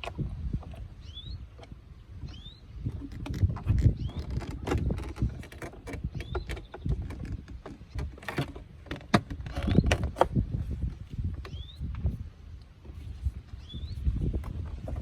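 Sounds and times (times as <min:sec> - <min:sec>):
clicks and knocks of car parts: 0:03.0 - 0:10.4.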